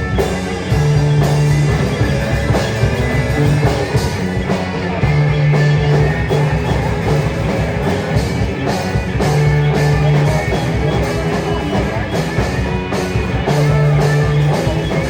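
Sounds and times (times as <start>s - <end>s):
bass guitar: 0.0s - 15.0s
distorted electric guitar: 0.0s - 15.0s
drum kit: 0.0s - 15.0s.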